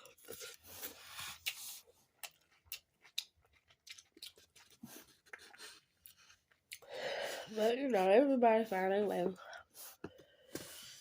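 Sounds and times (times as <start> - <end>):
person chewing food: 0.0 - 7.4.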